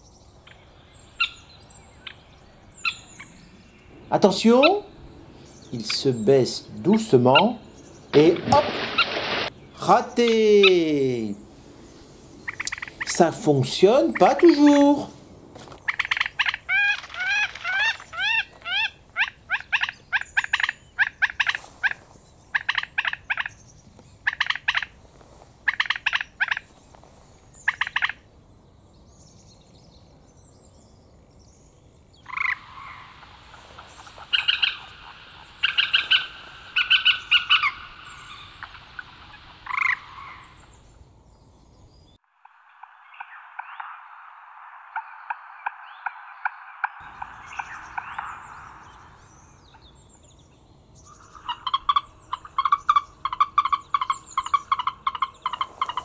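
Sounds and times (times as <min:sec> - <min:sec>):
bird calling: 0:00.0 - 0:28.3, 0:32.1 - 0:56.0.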